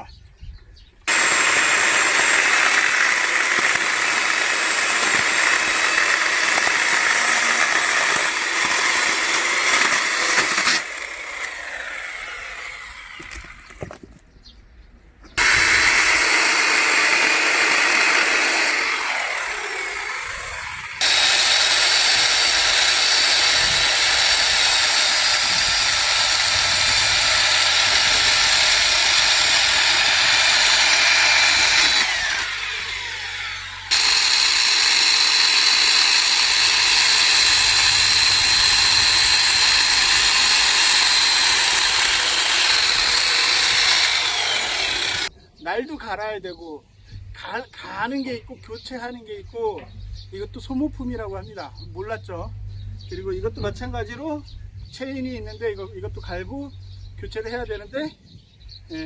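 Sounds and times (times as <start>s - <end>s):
electric chainsaw sawing wood: 1.0s - 14.0s, 15.4s - 45.3s
chainsaw winding down: 1.1s - 13.8s, 15.4s - 45.3s.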